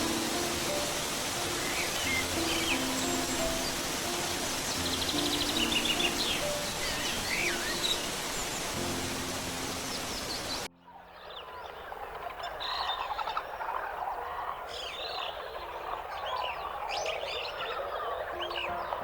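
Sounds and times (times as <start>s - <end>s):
birds chirping and calling: 0.2s - 19.0s.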